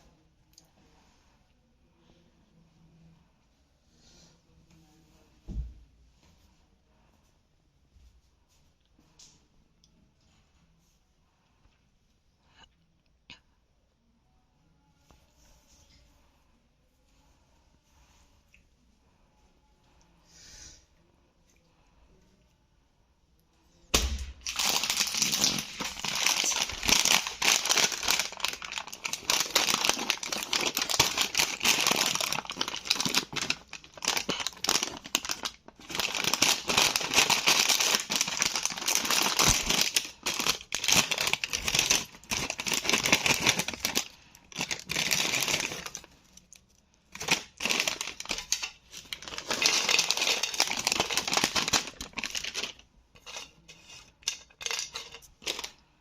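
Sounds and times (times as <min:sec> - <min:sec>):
plastic packets crinkling: 0:24.0 - 0:52.8, 0:54.2 - 0:55.8.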